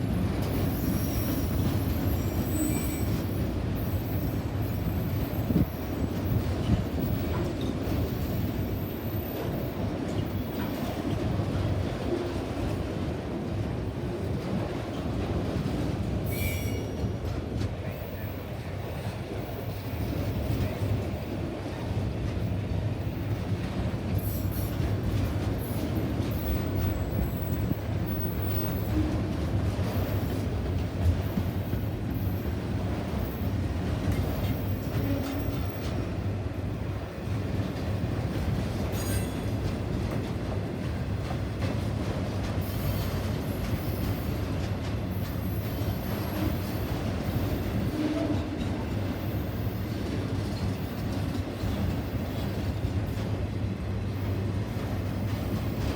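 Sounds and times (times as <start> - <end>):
train wheels rumbling on rail: 0.0 - 55.9
high wheel squeal: 0.6 - 5.5.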